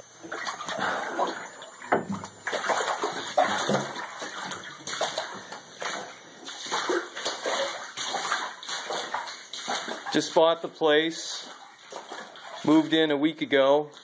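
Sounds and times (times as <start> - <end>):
rubber boots wading through water: 2.4 - 10.6, 11.2 - 13.0.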